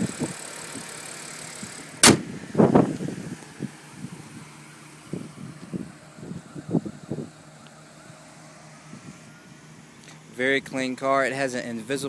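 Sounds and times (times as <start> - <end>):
car hood slamming shut: 2.0 - 2.3.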